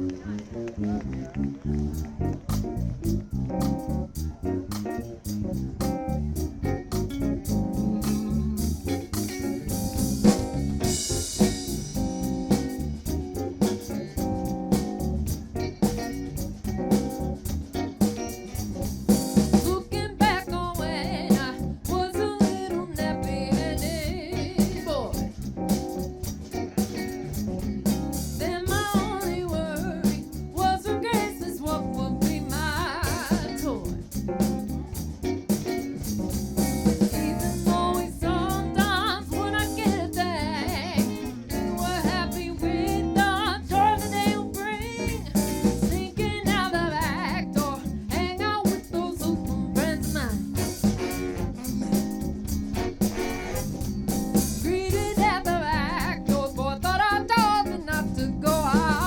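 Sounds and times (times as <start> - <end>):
drums and bass beat: 0.0 - 59.0
live band playing: 0.0 - 59.0
lead singer singing: 19.6 - 25.2, 28.4 - 34.0, 37.1 - 50.7, 54.6 - 59.0.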